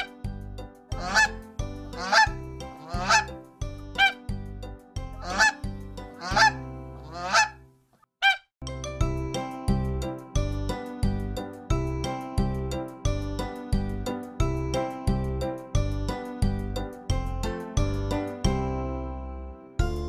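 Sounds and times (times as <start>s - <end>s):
background music: 0.0s - 7.8s, 8.6s - 20.0s
goose honking: 0.9s - 3.4s, 4.0s - 4.2s, 5.2s - 7.6s, 8.2s - 8.4s.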